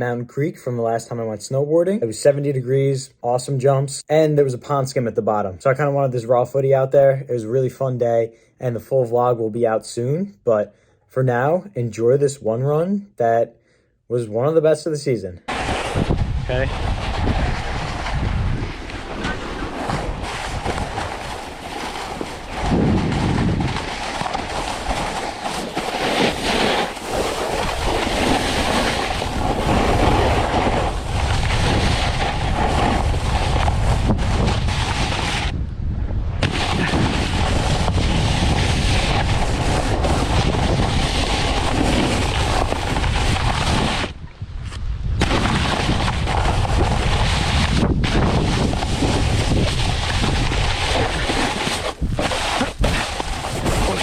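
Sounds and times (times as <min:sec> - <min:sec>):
snowboard scraping over snow: 0:15.5 - 0:35.5, 0:36.4 - 0:44.2, 0:45.2 - 0:54.0
wind buffeting microphone: 0:15.6 - 0:24.6, 0:29.0 - 0:51.3, 0:51.9 - 0:54.0.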